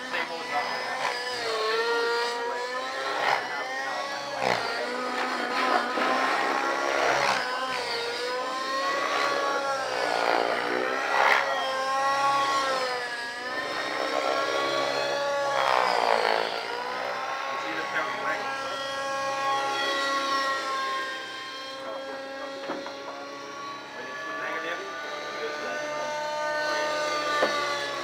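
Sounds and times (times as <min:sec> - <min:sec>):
model helicopter rotor whine: 0:00.0 - 0:28.0.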